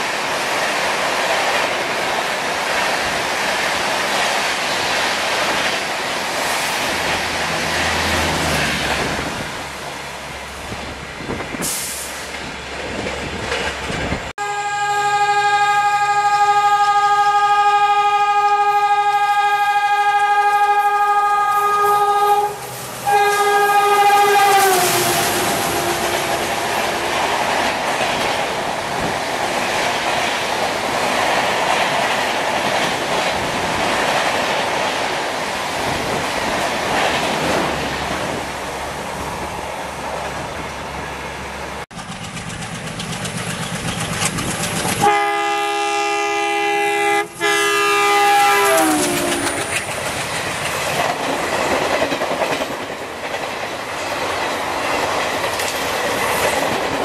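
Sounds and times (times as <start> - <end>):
train horn: 14.4 - 27.3, 45.0 - 49.8
train wheels clattering: 41.9 - 45.7, 48.4 - 57.0.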